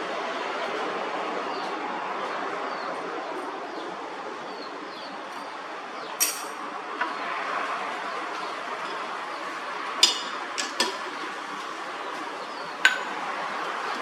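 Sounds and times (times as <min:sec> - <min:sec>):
sharp metallic clink: 0:06.2 - 0:06.6.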